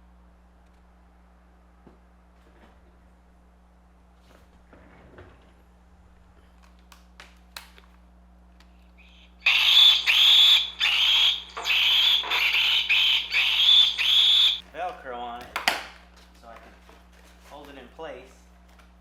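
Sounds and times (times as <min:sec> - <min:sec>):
recorded monkey screams: 0:09.4 - 0:14.6.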